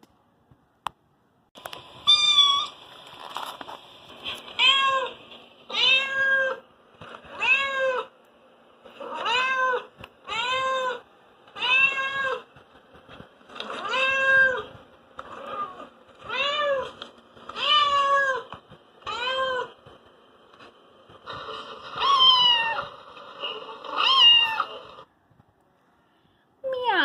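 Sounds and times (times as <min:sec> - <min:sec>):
cat meowing: 0:05.7 - 0:06.6, 0:23.9 - 0:24.8.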